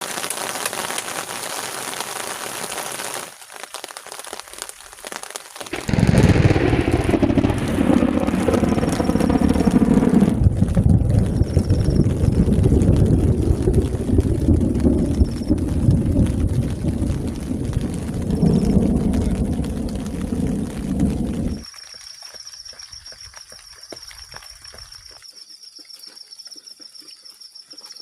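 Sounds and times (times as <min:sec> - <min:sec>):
heavy rain: 0:00.0 - 0:22.0
rain dripping: 0:00.0 - 0:25.3
wind: 0:00.0 - 0:28.0.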